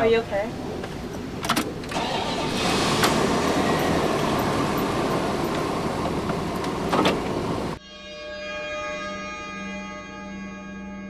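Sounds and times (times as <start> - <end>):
vehicle road and engine rumble: 0.0 - 7.8.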